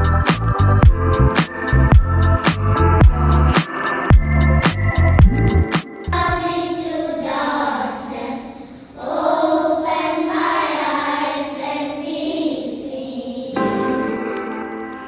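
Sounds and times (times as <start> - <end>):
children singing together: 6.1 - 15.0.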